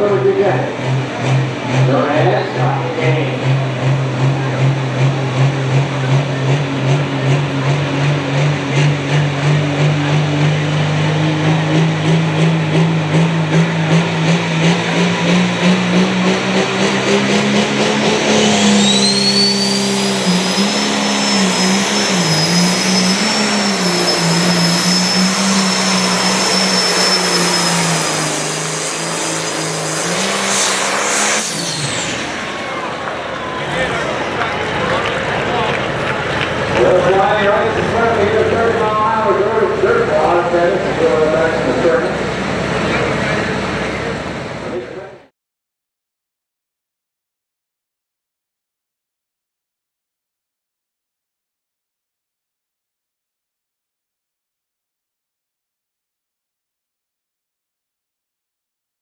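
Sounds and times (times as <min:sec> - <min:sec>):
diesel tractor engine under load: 0:00.0 - 0:45.3
high turbo whistle: 0:17.8 - 0:33.0.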